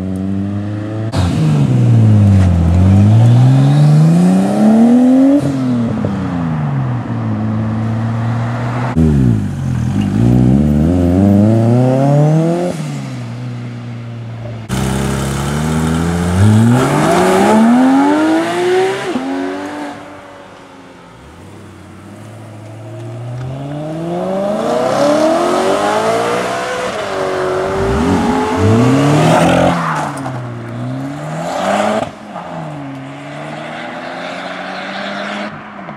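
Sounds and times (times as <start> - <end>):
cars accelerating hard: 0.0 - 6.8, 14.7 - 20.2, 23.0 - 35.9.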